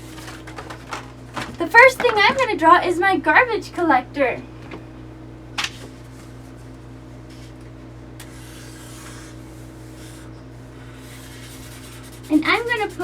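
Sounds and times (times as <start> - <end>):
low electrical hum: 0.0 - 13.0
marker scratching on paper: 8.2 - 9.3, 11.0 - 13.0.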